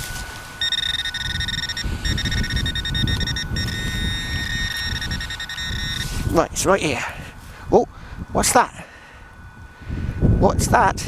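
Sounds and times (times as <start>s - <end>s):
hands rustling in soil: 0.0s - 0.6s, 6.0s - 6.4s
metal detector pinpointer buzzing: 0.0s - 6.4s.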